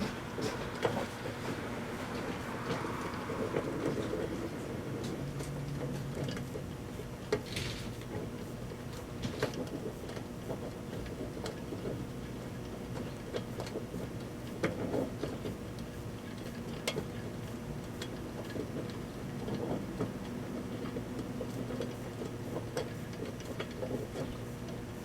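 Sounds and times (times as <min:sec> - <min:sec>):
microwave oven humming: 0:00.0 - 0:25.0
sharp clicks and ticks: 0:00.0 - 0:25.0.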